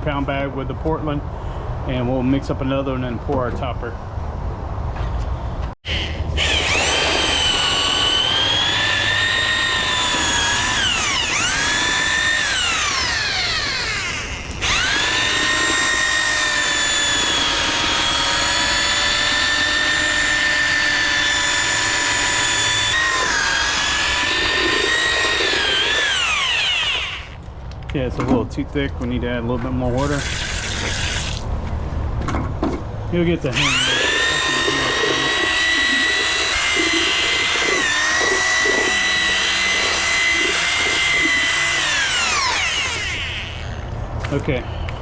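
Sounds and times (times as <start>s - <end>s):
electric drill motor whining: 5.8s - 27.4s, 30.2s - 31.4s, 33.5s - 43.9s.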